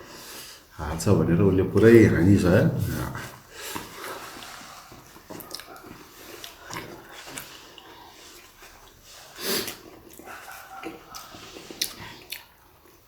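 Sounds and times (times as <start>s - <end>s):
wet chewing with mouth clicks: 3.5s - 13.0s.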